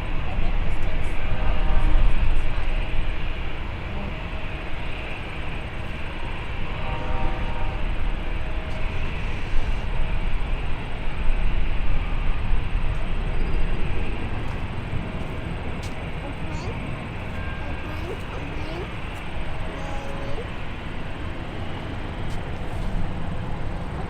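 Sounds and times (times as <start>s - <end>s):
jet engine rumble: 0.0s - 24.0s
jet engine whine: 0.0s - 24.0s.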